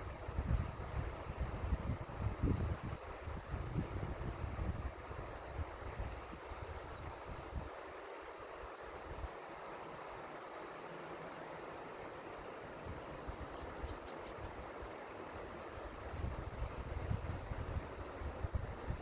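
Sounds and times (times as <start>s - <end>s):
wind rumbling on microphone: 0.0s - 7.7s, 15.7s - 19.0s
river water flowing: 4.6s - 19.0s.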